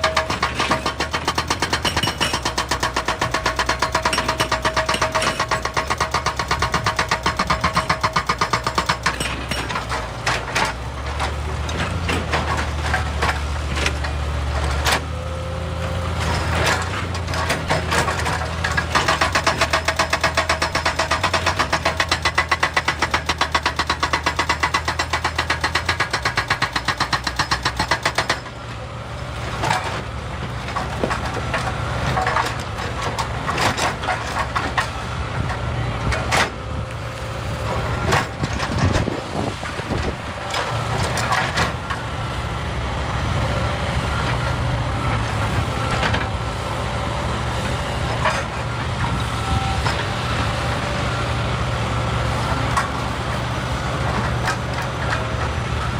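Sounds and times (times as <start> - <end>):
excavator diesel engine: 0.0 - 55.9.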